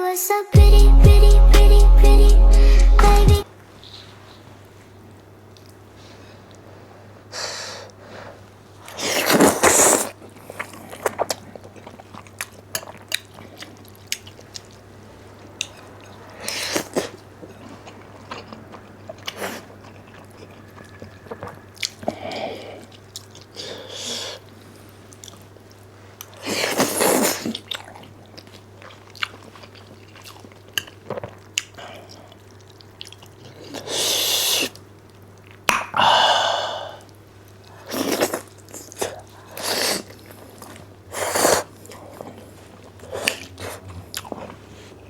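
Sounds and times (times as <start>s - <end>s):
chewing: 8.8s - 36.0s, 37.0s - 45.0s
noodle slurping: 8.9s - 13.8s, 26.4s - 27.7s, 33.7s - 34.8s, 37.8s - 45.0s
wet mouth clicks: 35.5s - 36.0s.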